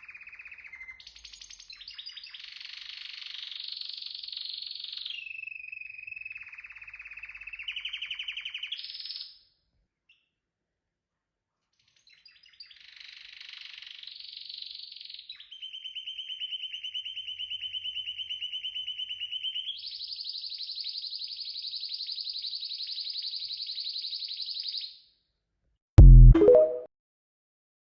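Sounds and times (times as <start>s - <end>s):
canary singing trills: 12.1s - 24.9s.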